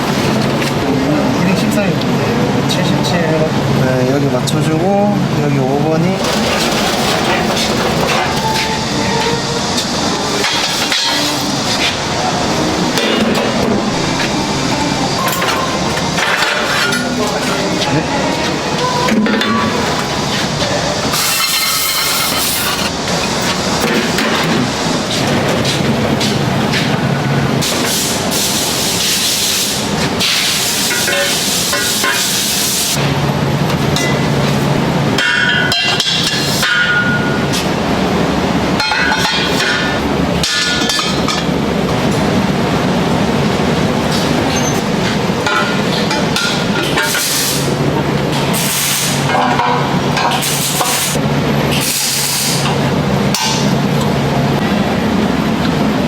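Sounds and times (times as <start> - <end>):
machine hum: 5.2 - 28.5.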